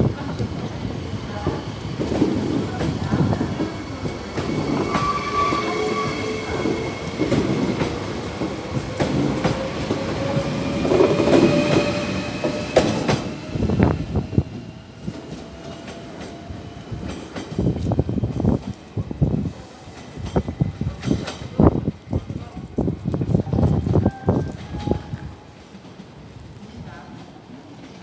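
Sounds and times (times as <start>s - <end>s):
train wheels clacking on rails: 0.2s - 18.8s.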